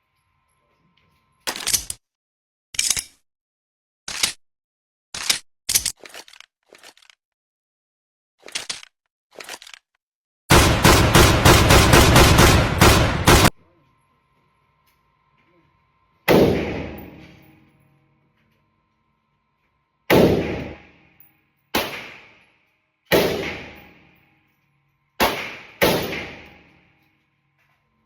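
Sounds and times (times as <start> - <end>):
gunshots with echo: 10.5 - 13.6, 16.3 - 17.4, 20.1 - 20.9, 23.1 - 23.9, 25.2 - 26.6.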